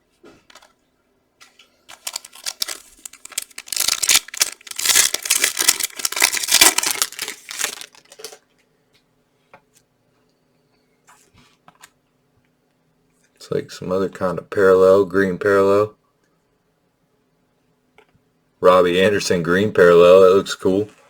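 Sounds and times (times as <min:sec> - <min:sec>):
foil wrapper tearing and crinkling: 0:01.9 - 0:08.4.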